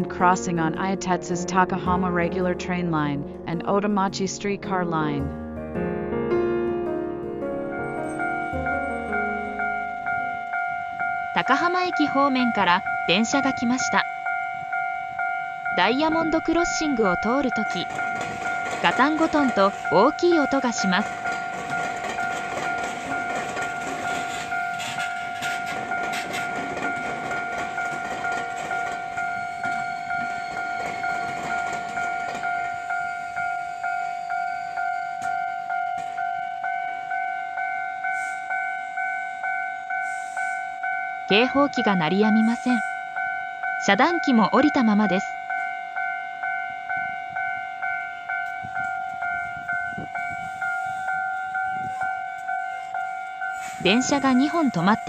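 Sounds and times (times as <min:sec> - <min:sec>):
level crossing alarm ringing: 0:07.7 - 0:55.0
train wheels clattering: 0:17.6 - 0:33.3.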